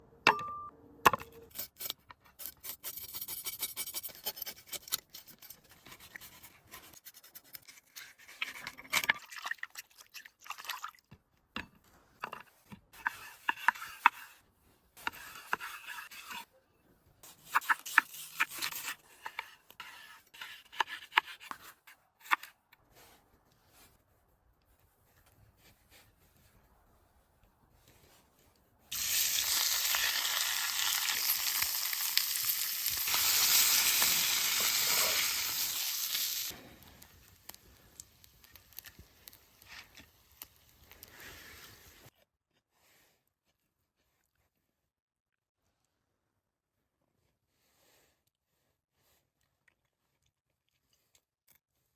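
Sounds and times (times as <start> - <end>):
scraping and rubbing: 11.8 - 16.6, 17.2 - 31.6.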